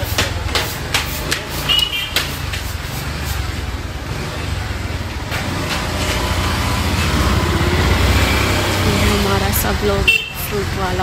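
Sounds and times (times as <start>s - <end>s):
motorbike engine rumbling: 0.0s - 11.0s.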